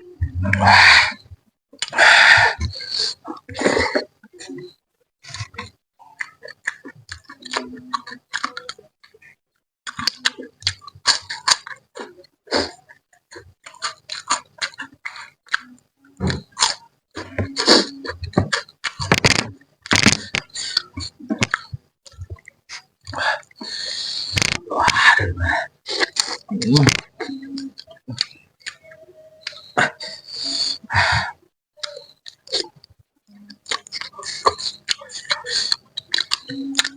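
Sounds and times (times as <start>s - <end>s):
wet chewing and lip-smacking: 5.2s - 9.3s, 31.8s - 36.9s.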